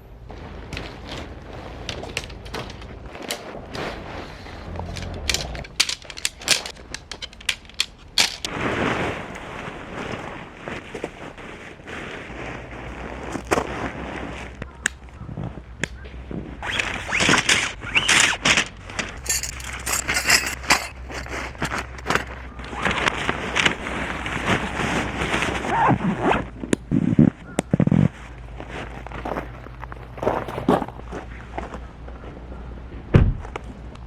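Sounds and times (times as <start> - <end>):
rustling: 0.3 - 32.4
clicks and light knocks: 4.7 - 8.5.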